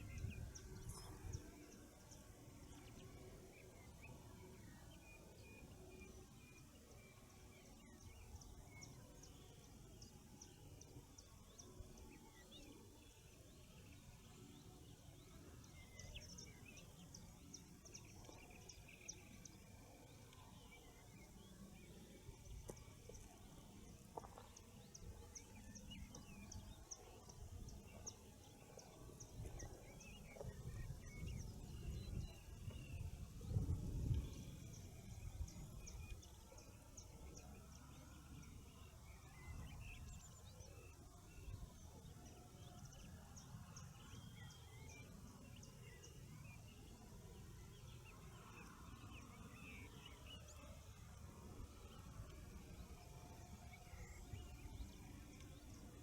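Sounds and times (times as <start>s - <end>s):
birds chirping: 13.8s - 46.6s.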